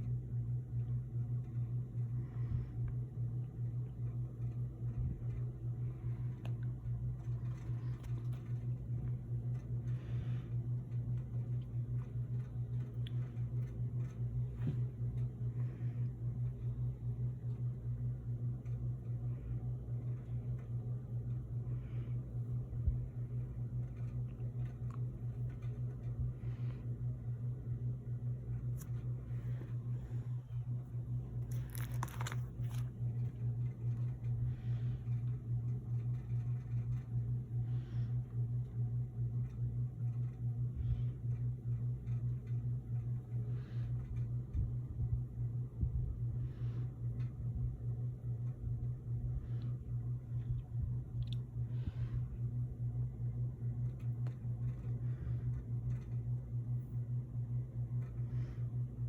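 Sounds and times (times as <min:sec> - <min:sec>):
pulsing low hum: 0:00.0 - 0:59.0
soft rustles: 0:28.5 - 0:37.1.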